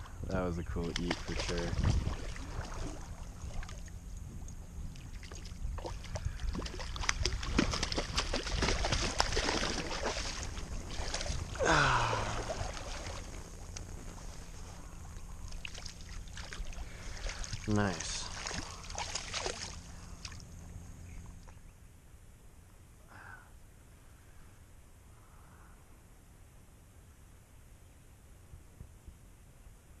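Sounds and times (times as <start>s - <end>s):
water splashing and sloshing: 0.4s - 20.6s.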